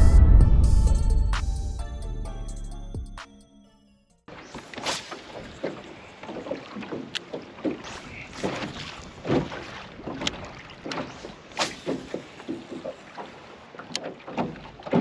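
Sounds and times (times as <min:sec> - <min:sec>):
water slapping boat hull: 0:04.3 - 0:15.0.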